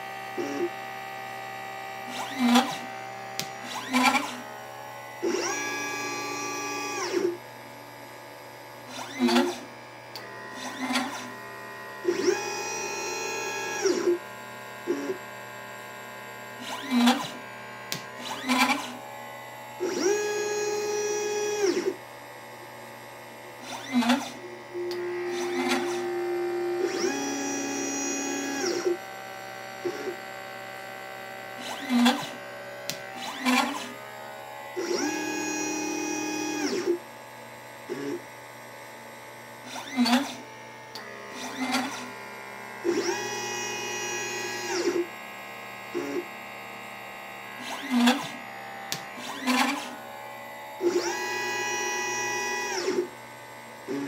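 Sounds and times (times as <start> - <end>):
stepper motors whining: 0.0 - 7.4, 8.9 - 15.2, 16.5 - 22.0, 23.6 - 37.0, 39.7 - 45.2, 47.4 - 53.1
steady machine hum: 0.0 - 39.7.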